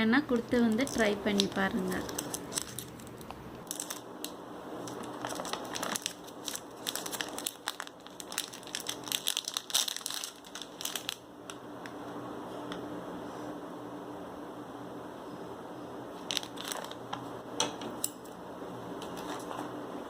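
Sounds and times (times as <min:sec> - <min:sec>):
plastic snack packet crinkling: 0:00.7 - 0:11.6, 0:16.2 - 0:17.0.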